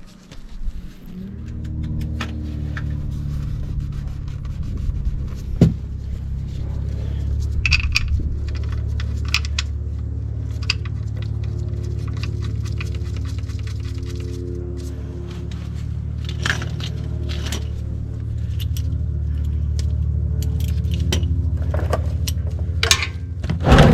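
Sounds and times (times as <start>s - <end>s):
steady low hum: 0.0s - 23.9s
metal clicks and clinks: 16.2s - 23.2s.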